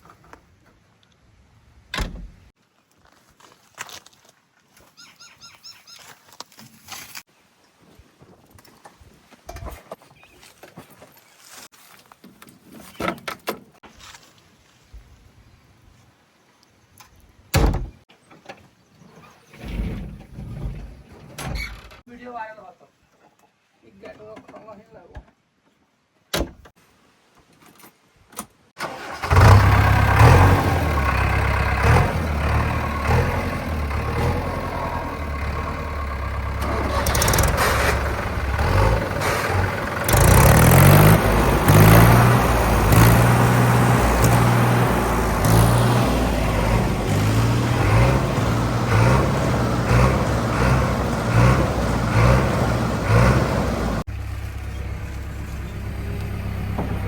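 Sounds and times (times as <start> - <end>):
heavy diesel engine working: 28.8 - 57.0.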